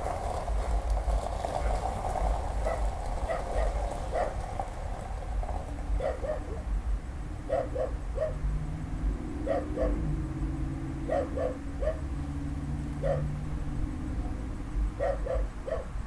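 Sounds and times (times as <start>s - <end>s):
dog barking: 2.6s - 4.4s, 6.0s - 6.6s, 7.5s - 8.4s, 9.4s - 10.0s, 11.0s - 12.1s, 13.0s - 13.4s, 15.0s - 16.0s.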